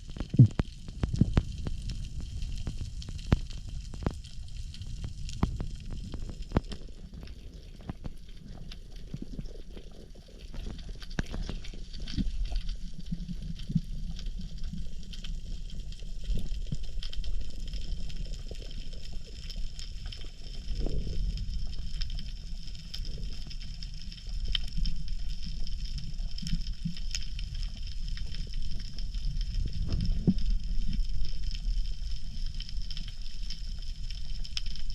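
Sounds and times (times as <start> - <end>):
underwater crackle of clicks: 0.0 - 34.9.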